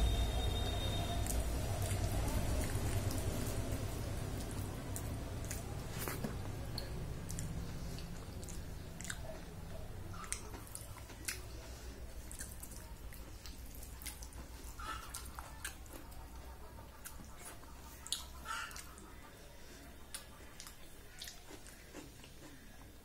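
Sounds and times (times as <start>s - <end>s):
low steady hum: 0.0s - 23.0s
wet chewing and smacking: 0.6s - 19.1s, 20.1s - 23.0s.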